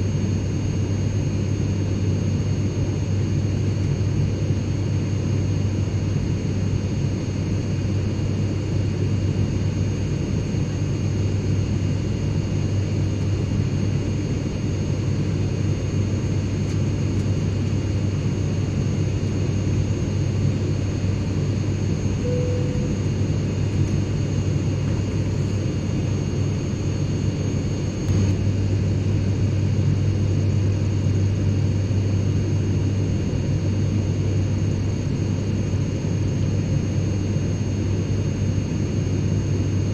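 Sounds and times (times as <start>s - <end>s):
airplane cabin noise: 0.0s - 39.9s
faint high steady tones: 22.2s - 23.2s.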